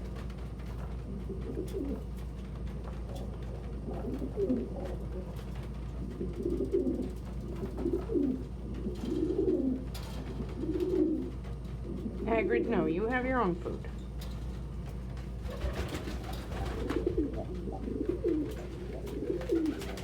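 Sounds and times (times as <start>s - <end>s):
steady low hum: 0.0s - 20.0s
pigeons cooing: 1.0s - 2.3s, 3.0s - 12.8s, 15.4s - 20.0s.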